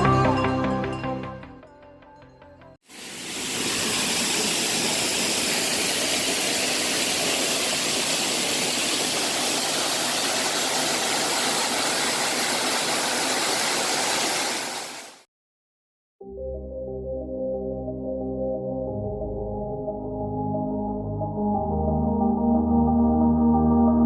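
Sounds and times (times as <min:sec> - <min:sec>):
waterfall rushing: 0:02.9 - 0:15.2.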